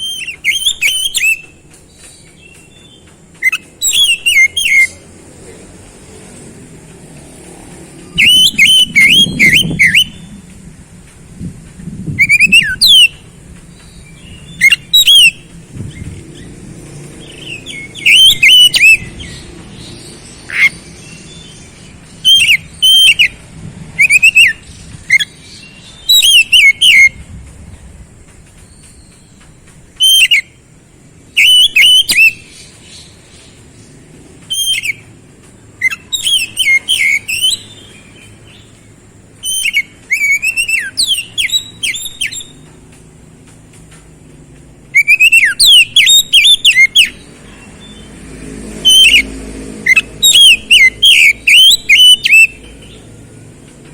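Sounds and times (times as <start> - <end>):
songbird whistling and chattering: 0.0 - 5.1, 8.0 - 10.5, 12.1 - 27.3, 28.6 - 30.6, 31.3 - 35.1, 35.7 - 38.8, 39.4 - 42.7, 44.9 - 48.1, 48.8 - 53.1.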